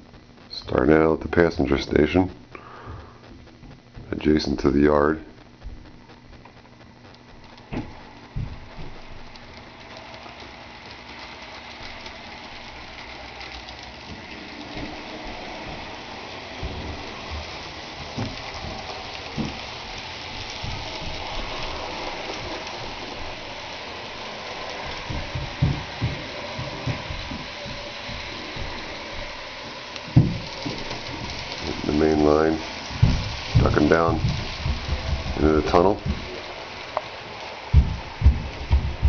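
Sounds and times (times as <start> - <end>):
model train running on track: 7.5 - 39.0
low knocks: 24.0 - 28.8, 30.1 - 31.8, 32.6 - 36.4, 37.8 - 39.0.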